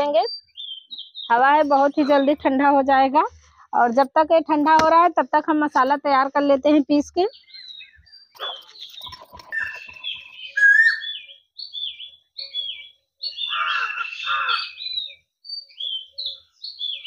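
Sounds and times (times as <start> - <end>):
small birds chirping: 0.0 - 4.3, 5.7 - 17.0.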